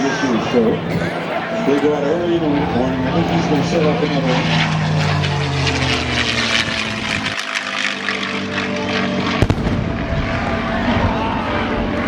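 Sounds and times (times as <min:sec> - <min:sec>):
aircraft noise: 0:00.0 - 0:12.0
pyrotechnic explosion bang: 0:09.4 - 0:11.4
low rumble: 0:09.4 - 0:12.0.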